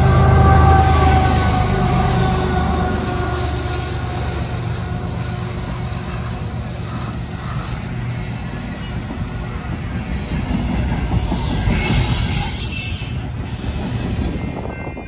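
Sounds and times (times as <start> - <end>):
boxcars rolling on rails: 0.0 - 15.0
diesel locomotive engine rumble: 0.0 - 15.0.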